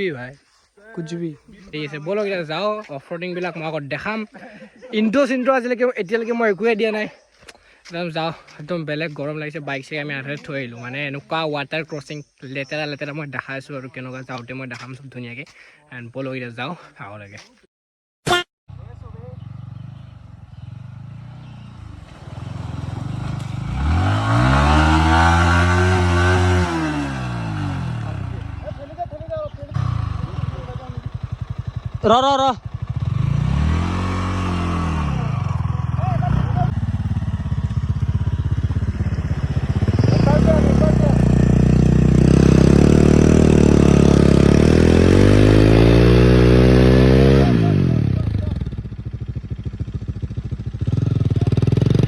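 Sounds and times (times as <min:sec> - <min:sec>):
motorcycle engine revving: 0:18.7 - 0:52.0.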